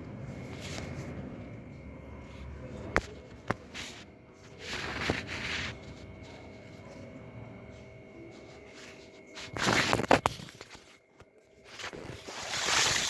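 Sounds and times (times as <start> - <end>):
faint steady hum: 0.0 - 13.0
rustling scraping handling noise: 2.2 - 6.5, 8.3 - 13.0.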